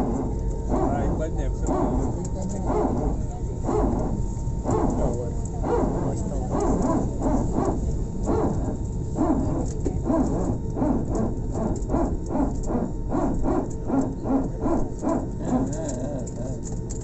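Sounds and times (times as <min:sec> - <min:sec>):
airliner cabin rumble: 0:00.0 - 0:17.0
muffled voices talking: 0:00.7 - 0:10.4, 0:13.8 - 0:16.8.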